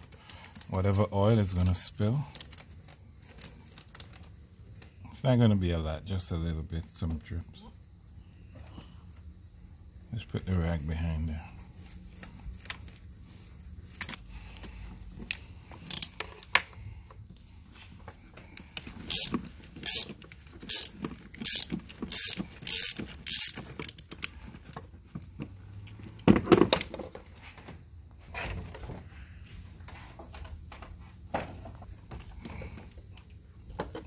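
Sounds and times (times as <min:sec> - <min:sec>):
socket ratchet clicking: 0:19.0 - 0:24.3.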